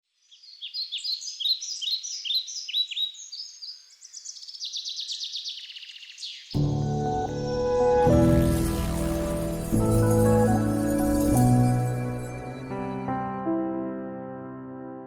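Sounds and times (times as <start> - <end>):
birds chirping and trilling: 0.1 - 13.2
music: 6.6 - 15.0.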